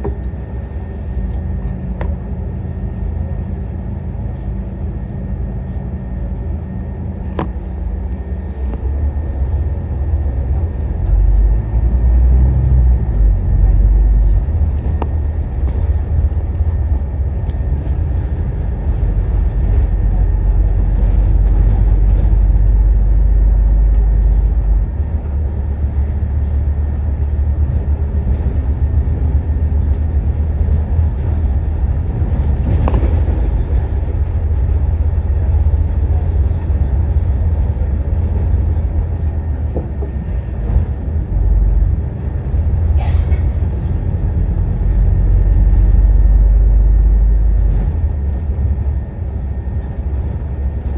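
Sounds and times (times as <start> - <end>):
bus diesel engine drone: 0.0 - 50.9.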